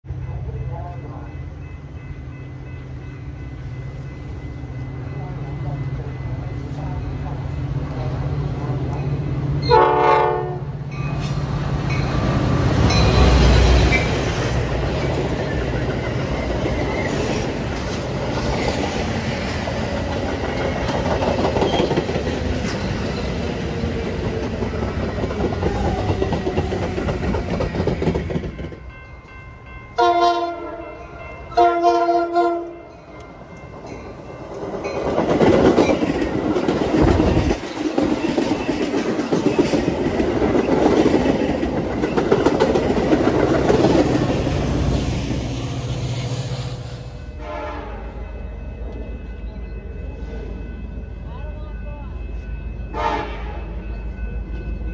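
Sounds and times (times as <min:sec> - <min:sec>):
train passing: 0:00.0 - 0:54.9
locomotive horn blasts: 0:09.6 - 0:10.7, 0:30.0 - 0:30.9, 0:31.6 - 0:32.8, 0:47.4 - 0:48.1, 0:52.9 - 0:53.6.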